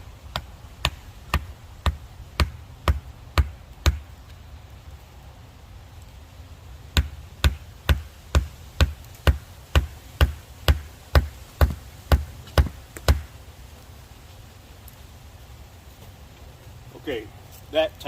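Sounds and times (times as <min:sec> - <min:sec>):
sledgehammer blows on wedges: 0:00.2 - 0:04.1, 0:06.9 - 0:13.4.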